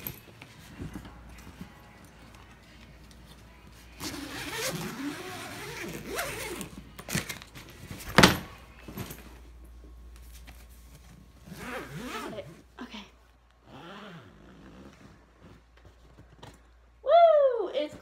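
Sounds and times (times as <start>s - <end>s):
suitcase rustling and shuffling: 0.0s - 12.6s.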